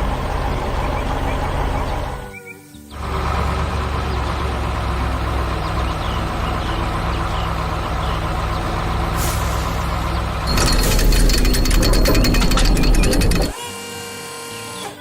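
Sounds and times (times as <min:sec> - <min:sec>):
heavy vehicle engine droning: 0:00.0 - 0:13.5.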